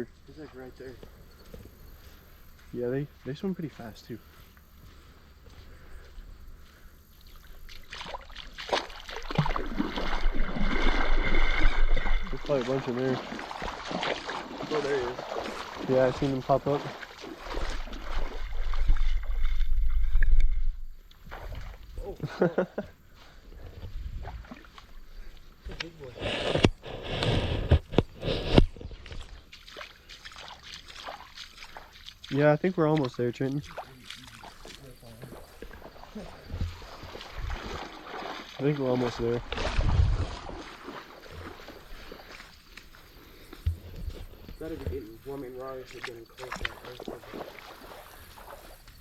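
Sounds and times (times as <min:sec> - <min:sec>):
river water splashing and rushing: 0:07.4 - 0:20.4, 0:29.1 - 0:43.0, 0:44.7 - 0:49.0.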